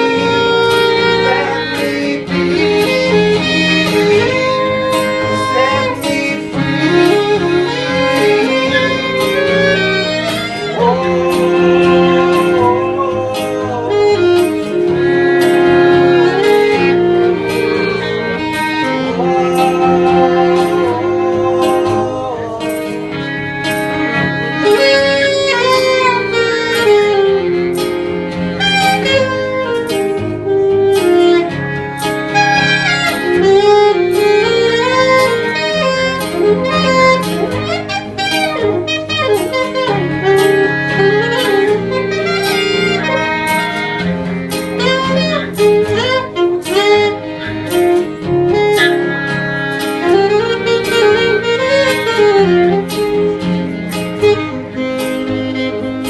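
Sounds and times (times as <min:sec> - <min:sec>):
live band instrumental: 0:00.0 - 0:56.0.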